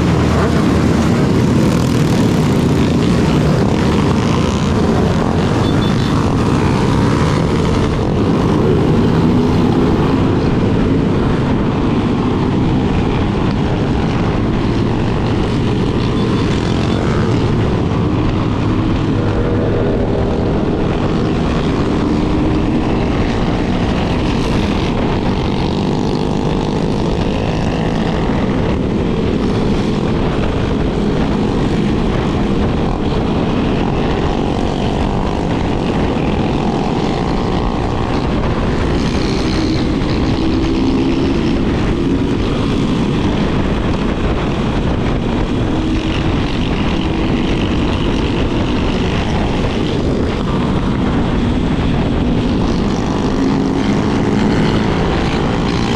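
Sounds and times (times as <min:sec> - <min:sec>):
motorcycle engine running: 0:00.0 - 0:55.9
wind rush on microphone: 0:00.0 - 0:55.9.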